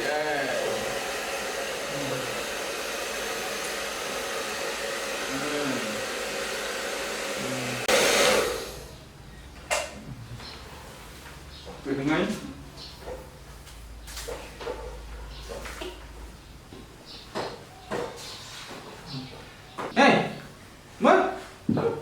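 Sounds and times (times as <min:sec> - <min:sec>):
hair dryer blowing: 0:00.0 - 0:09.0.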